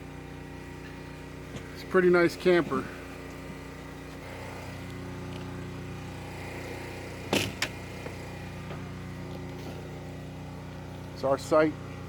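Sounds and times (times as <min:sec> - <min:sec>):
generator humming: 0:00.0 - 0:12.0
sharp knocks: 0:07.3 - 0:07.8.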